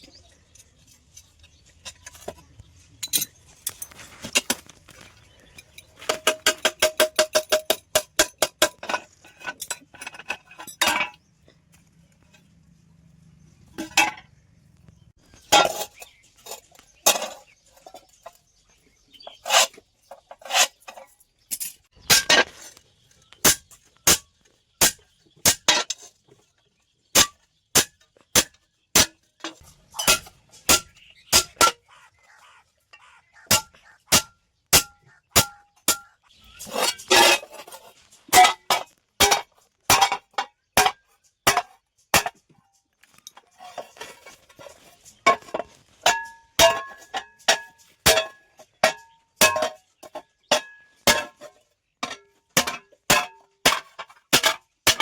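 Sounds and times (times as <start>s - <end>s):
hammer striking steel plate: 33.5s - 36.1s.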